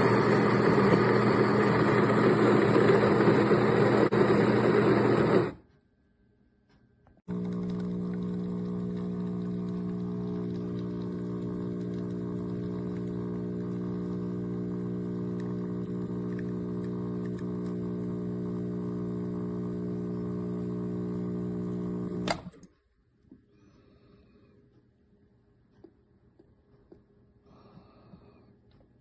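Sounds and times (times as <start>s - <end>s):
espresso machine pump humming: 0.0s - 5.6s, 7.2s - 22.6s
sharp click of machine shutting off: 21.5s - 22.7s.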